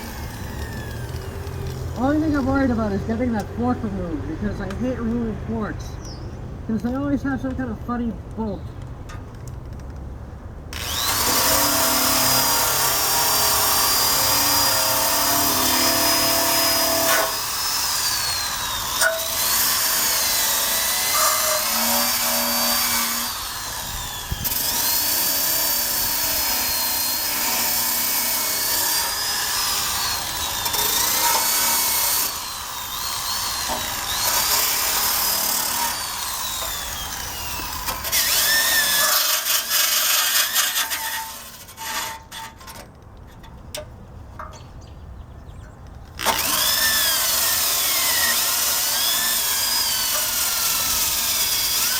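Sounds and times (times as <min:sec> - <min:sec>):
electric drill motor whine: 0:00.0 - 0:02.0, 0:10.8 - 0:39.8, 0:46.2 - 0:51.9
wire brush scraping metal: 0:37.9 - 0:42.9.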